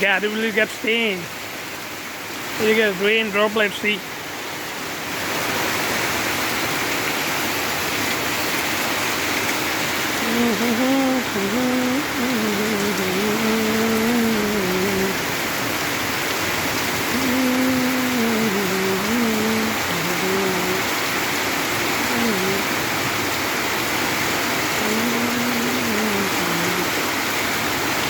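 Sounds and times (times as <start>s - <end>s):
steady rain falling: 0.0s - 28.0s
person humming a tune: 10.1s - 15.3s, 17.0s - 20.9s, 22.0s - 22.7s, 24.8s - 27.0s.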